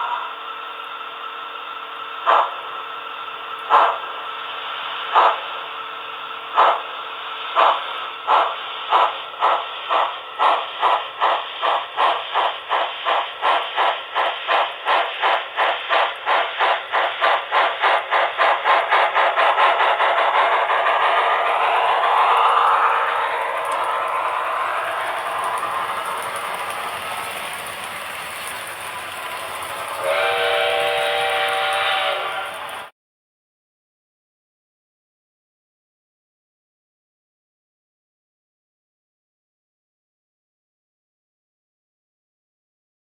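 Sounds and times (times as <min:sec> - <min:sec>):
steam hiss from small speakers: 0:00.0 - 0:32.9
steam locomotive exhaust chuffs: 0:00.0 - 0:32.9.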